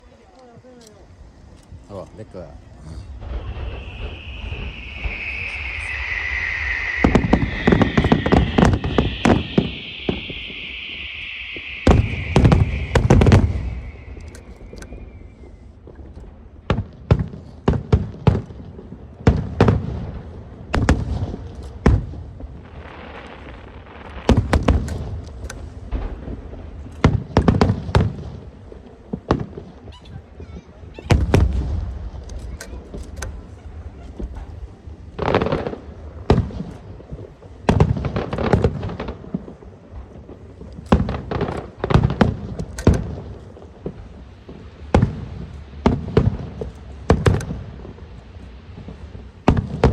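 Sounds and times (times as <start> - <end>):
fireworks bursting and banging: 0.6 - 49.9.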